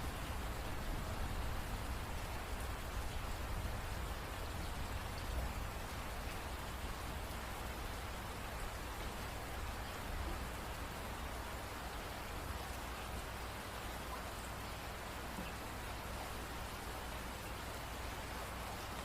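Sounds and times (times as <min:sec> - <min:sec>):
rain pattering on a surface: 0:00.0 - 0:19.0.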